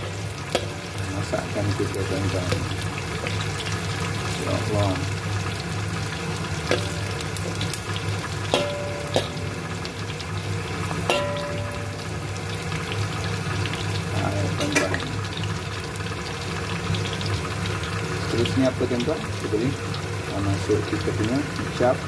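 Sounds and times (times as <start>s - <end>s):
vegetables sizzling in hot oil: 0.0s - 22.0s
metal fork knocking against wok: 8.5s - 9.8s, 11.1s - 12.1s.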